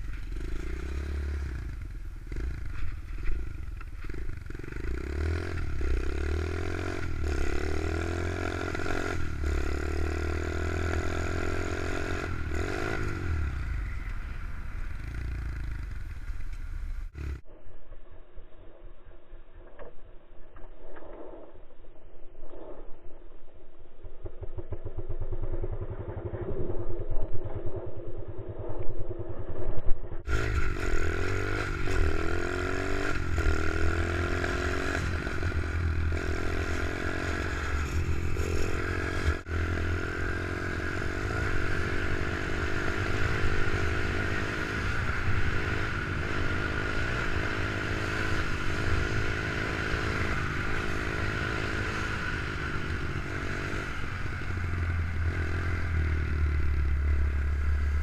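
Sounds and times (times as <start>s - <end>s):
pit bike engine revving: 0.0s - 17.4s, 30.3s - 58.0s.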